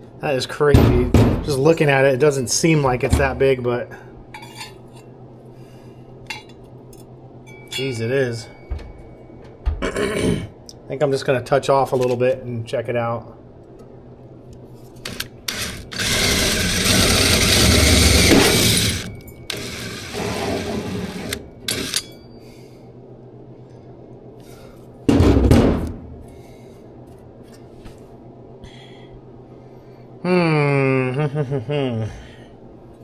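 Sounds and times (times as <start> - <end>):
hole saw drilling sheet metal: 15.0 - 22.1.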